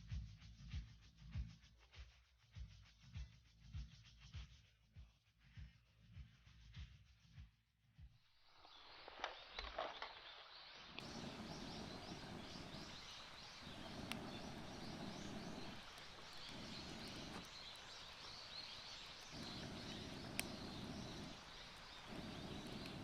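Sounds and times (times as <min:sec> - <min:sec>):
low rushing noise: 0:11.0 - 0:23.0
rapid high chirps: 0:11.0 - 0:23.0
sharp clicks: 0:11.0 - 0:23.0.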